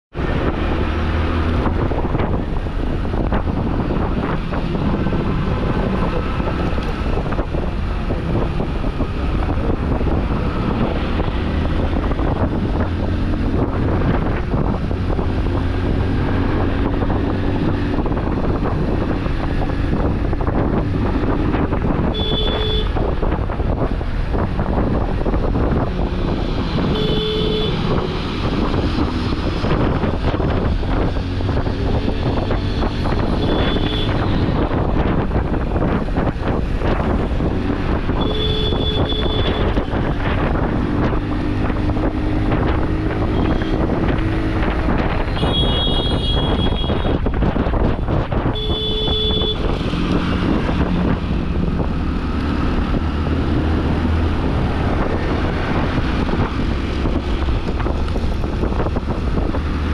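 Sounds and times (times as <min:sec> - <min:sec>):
motorcycle engine and road noise: 0:00.0 - 0:59.9
wind buffeting microphone: 0:00.1 - 0:59.9
vehicle horn: 0:22.1 - 0:23.0, 0:26.8 - 0:27.8, 0:33.4 - 0:34.3, 0:38.2 - 0:39.8, 0:43.4 - 0:43.8, 0:45.4 - 0:47.2, 0:48.5 - 0:49.8.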